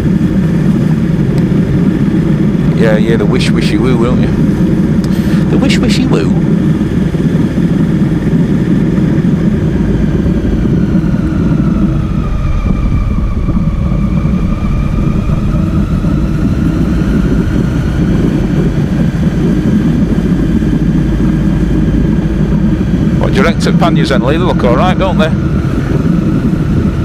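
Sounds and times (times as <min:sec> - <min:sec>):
motorcycle engine: 0:00.0 - 0:27.0
wind rumble: 0:00.0 - 0:27.0.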